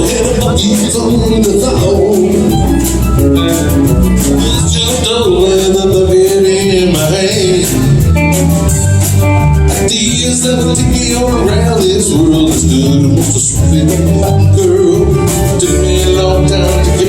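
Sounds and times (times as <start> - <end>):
live band playing: 0.0 - 17.0
wavering lead melody: 0.0 - 17.0.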